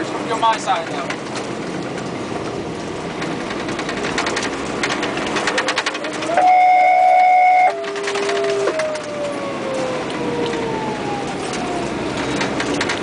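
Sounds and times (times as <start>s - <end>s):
truck engine and road noise: 0.0s - 13.0s
horn blast: 6.2s - 8.8s
siren tone sliding down: 6.2s - 12.0s.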